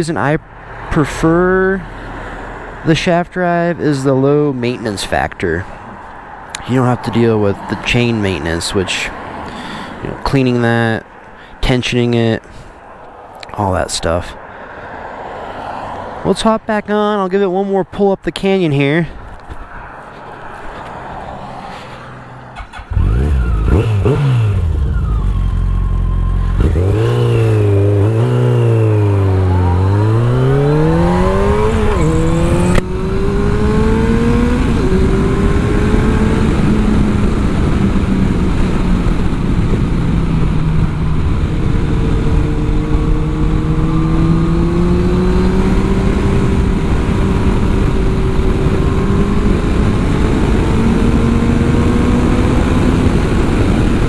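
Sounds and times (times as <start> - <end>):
motorcycle engine accelerating: 22.4 - 54.0.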